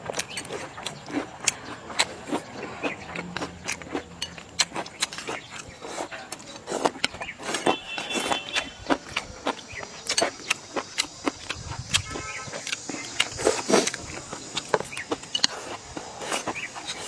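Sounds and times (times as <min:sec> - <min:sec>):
chewing: 0:00.0 - 0:17.0
chopsticks clicking against bowls: 0:02.8 - 0:07.7, 0:08.5 - 0:17.0.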